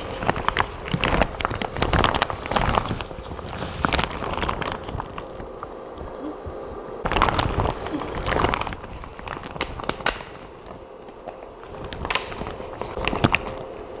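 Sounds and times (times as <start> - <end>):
faint steady hum: 0.0 - 14.0
rustling and clicking handling: 0.0 - 14.0.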